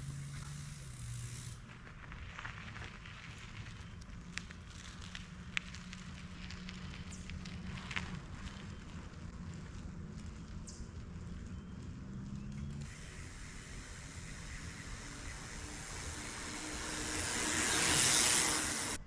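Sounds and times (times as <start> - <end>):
mountain bike rolling on dirt: 0.0 - 19.0
rushing noise: 12.9 - 19.0.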